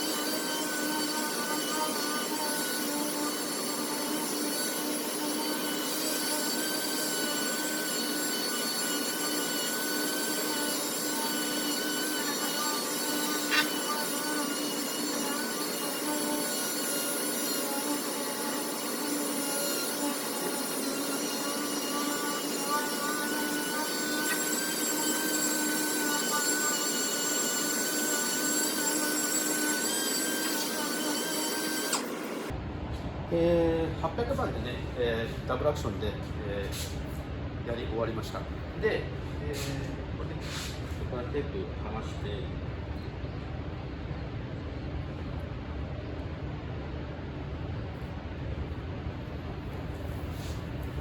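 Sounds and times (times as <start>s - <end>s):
sander whining: 0.0s - 32.6s.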